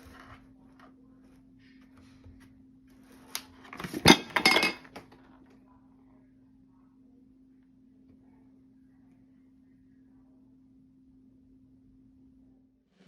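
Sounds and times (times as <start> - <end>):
hard objects clinking together: 3.7 - 5.1.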